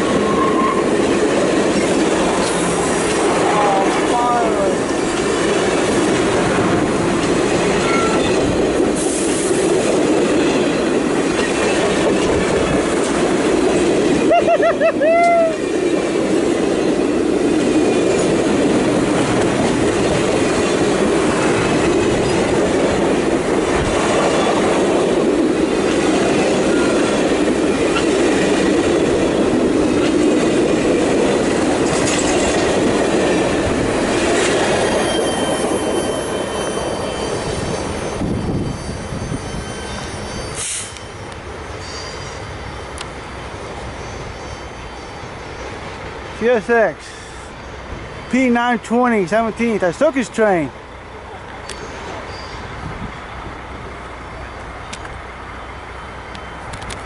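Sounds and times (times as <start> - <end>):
train wheels rumbling on rails: 0.0 - 57.0
wheels clicking over rail joints: 15.1 - 36.1
faint high wheel squeals: 34.8 - 46.0, 47.0 - 48.5, 51.6 - 53.4, 55.6 - 56.8.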